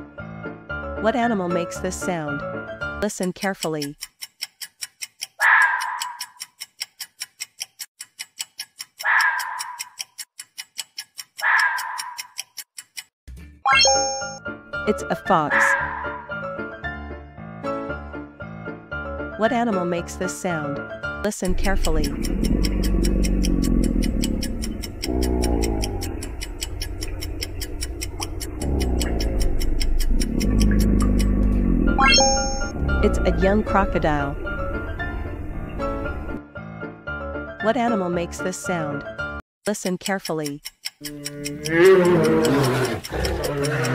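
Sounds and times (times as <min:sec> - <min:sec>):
background music: 0:00.0 - 0:03.2, 0:13.3 - 0:24.0, 0:28.6 - 0:39.4
clock ticking: 0:03.0 - 0:13.1, 0:13.8 - 0:15.7, 0:21.3 - 0:36.4, 0:39.6 - 0:43.9
fox rasping calls: 0:15.5 - 0:16.2, 0:21.6 - 0:32.1, 0:41.6 - 0:43.9.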